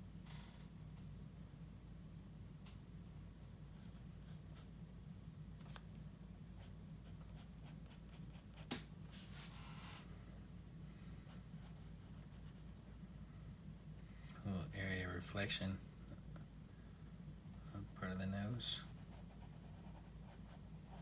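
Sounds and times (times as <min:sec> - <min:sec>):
pencil scratching on paper: 0:03.7 - 0:04.7, 0:06.6 - 0:08.7, 0:11.3 - 0:13.0, 0:17.4 - 0:21.0.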